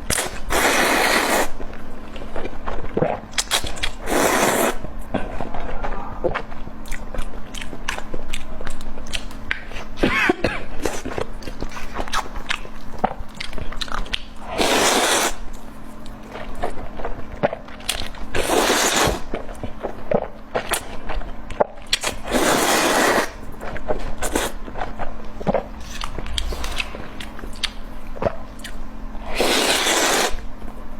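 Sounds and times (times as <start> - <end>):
chewing and biting: 5.0 - 9.9, 10.8 - 15.3.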